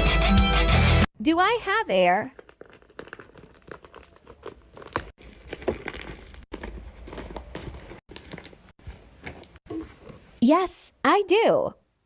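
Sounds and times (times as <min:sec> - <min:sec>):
paper crinkling and crackling: 0:02.3 - 0:09.6.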